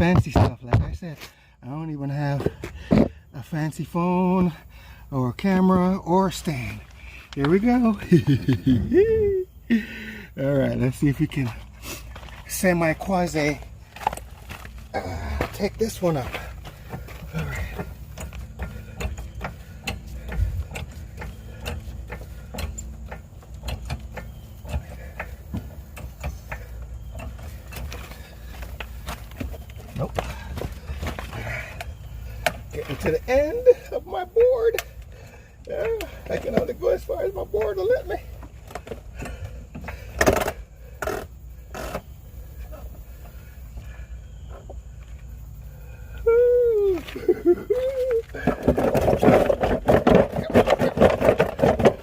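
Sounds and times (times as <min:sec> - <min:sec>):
low steady rumble: 0:00.0 - 0:52.0
car jack clicking and knocking: 0:15.5 - 0:33.3, 0:37.5 - 0:42.1, 0:48.4 - 0:52.0.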